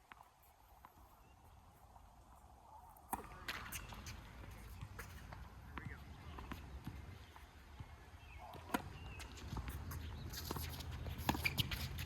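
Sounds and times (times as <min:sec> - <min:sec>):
ball struck with racket: 0:03.1 - 0:03.7.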